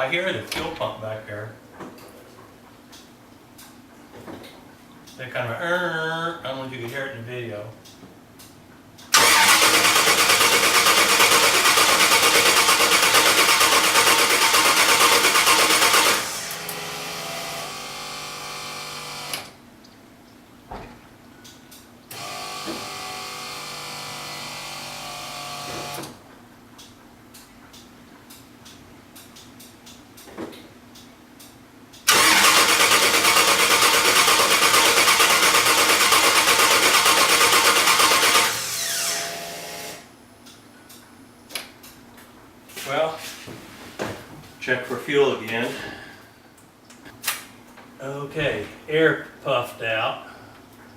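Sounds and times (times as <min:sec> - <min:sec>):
engine cranking on starter: 0:09.1 - 0:16.9, 0:32.1 - 0:39.0.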